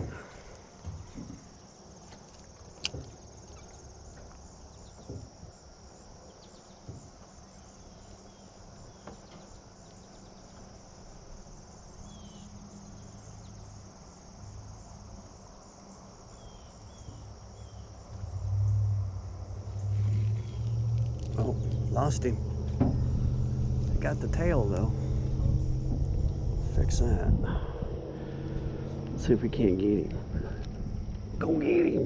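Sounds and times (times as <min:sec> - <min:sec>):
high-pitched insect chorus: 0:00.0 - 0:32.0
low rumble: 0:17.2 - 0:32.0.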